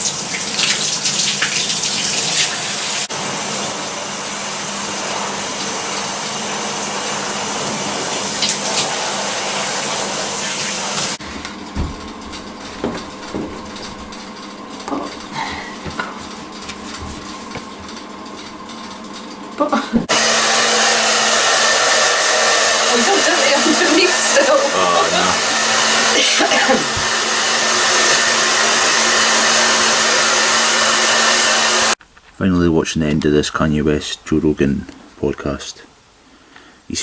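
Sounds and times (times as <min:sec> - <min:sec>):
water running into a bath: 0:00.0 - 0:32.0
light knocks and clatters: 0:11.2 - 0:19.0.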